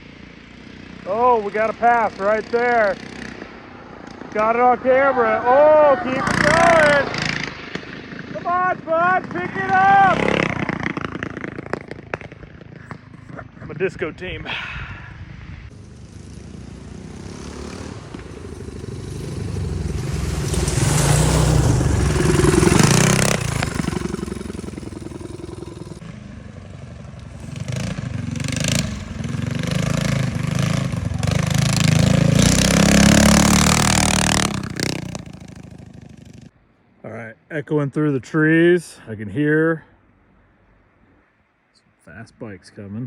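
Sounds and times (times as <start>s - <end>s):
minibike engines revving past: 0.0s - 14.2s, 15.2s - 36.5s.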